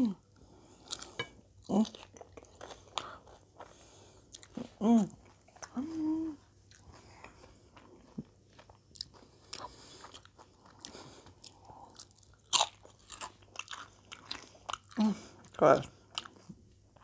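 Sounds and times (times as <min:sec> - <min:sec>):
wet chewing: 0:06.6 - 0:17.0.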